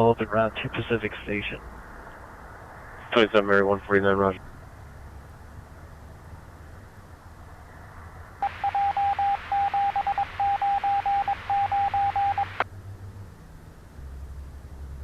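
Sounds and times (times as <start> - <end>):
radio beep tone: 8.4 - 12.6
radio static: 8.4 - 12.6.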